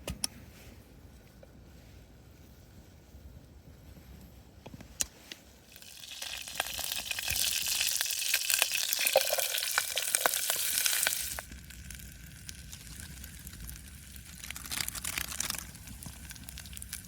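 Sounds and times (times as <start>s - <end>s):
food sizzling in a pan: 5.7s - 14.1s.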